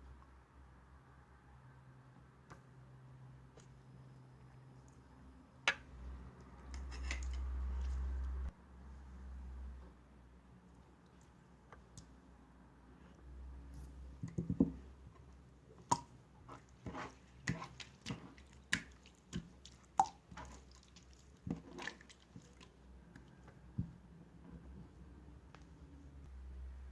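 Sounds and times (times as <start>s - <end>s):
slime squishing wet clicks: 16.9s - 22.7s.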